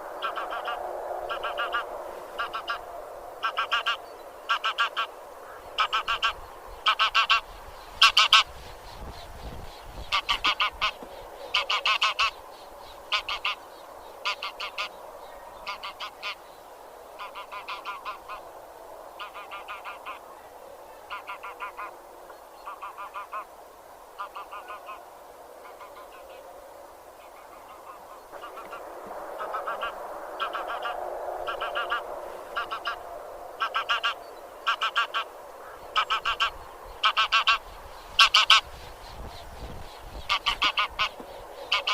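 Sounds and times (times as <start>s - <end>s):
geese honking: 0.2s - 8.5s, 10.1s - 12.4s, 13.1s - 13.6s, 14.2s - 15.0s, 15.6s - 16.4s, 17.2s - 18.4s, 21.1s - 21.9s, 22.7s - 23.5s, 27.4s - 33.0s, 33.6s - 38.7s, 40.3s - 41.9s.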